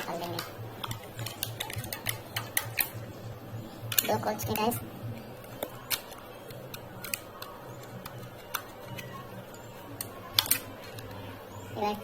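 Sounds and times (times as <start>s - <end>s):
power cord clicking and ticking: 0.0s - 3.0s
low steady hum: 0.0s - 12.0s.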